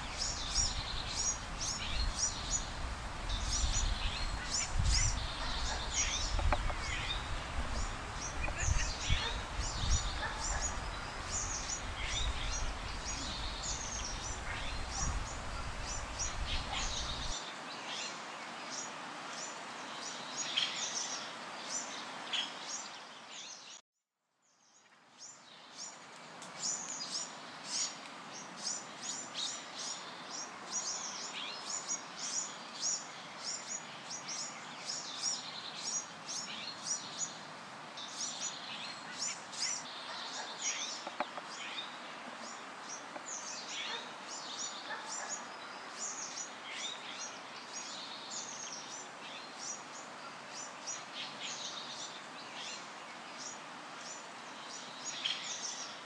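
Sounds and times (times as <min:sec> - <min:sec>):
songbirds chirping: 0:00.0 - 0:23.8, 0:24.5 - 0:56.0
outdoor ambience hiss: 0:00.0 - 0:56.0.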